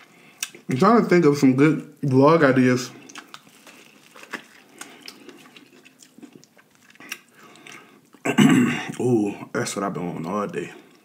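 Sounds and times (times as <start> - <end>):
person chewing corn with crunches: 3.0 - 8.2.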